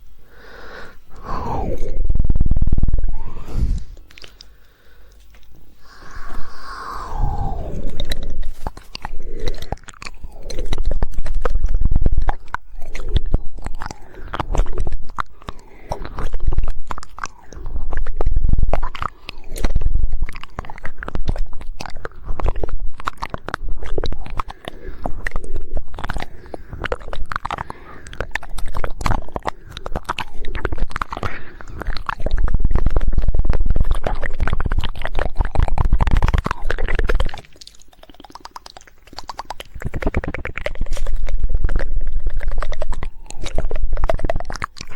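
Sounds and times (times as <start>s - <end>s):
rapid tongue clicks: 0.0s - 44.9s
wet mouth sounds: 0.0s - 44.9s
deep rumble: 1.2s - 4.3s, 5.8s - 15.2s.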